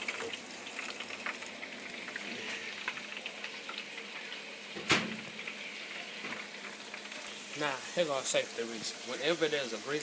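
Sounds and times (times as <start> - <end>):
chicken deep-frying sizzle: 0.0 - 10.0.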